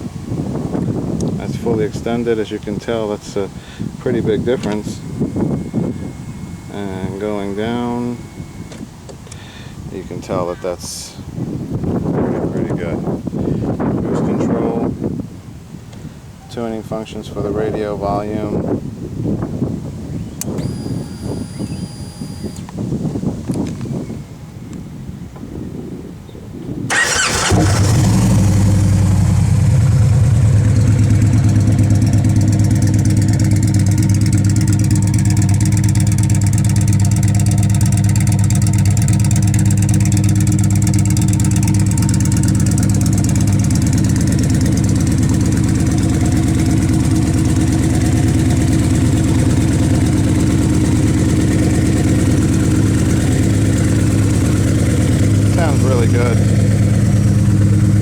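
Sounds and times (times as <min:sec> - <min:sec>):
motorcycle engine idling: 0:00.3 - 0:09.9, 0:20.2 - 0:22.7, 0:26.9 - 0:58.0.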